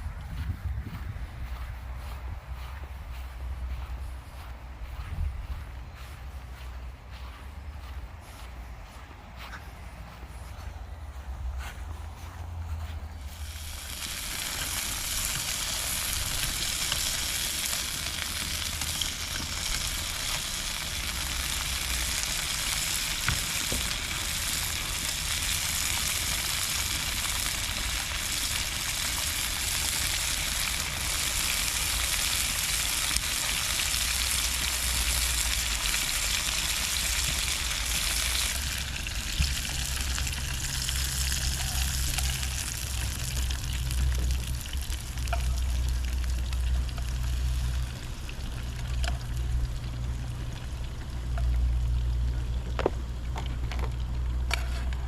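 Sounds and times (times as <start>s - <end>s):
food sizzling in a pan: 13.4s - 49.6s.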